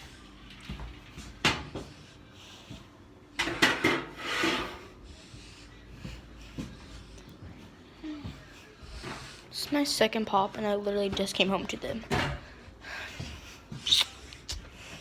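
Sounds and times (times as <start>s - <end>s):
kitchen knocks and clunks: 0.7s - 1.9s, 3.4s - 4.8s, 12.0s - 12.5s.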